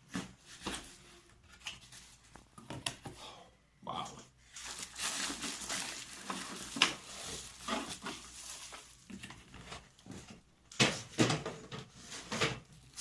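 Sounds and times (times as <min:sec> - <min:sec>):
packaging rustling: 0:04.5 - 0:10.4.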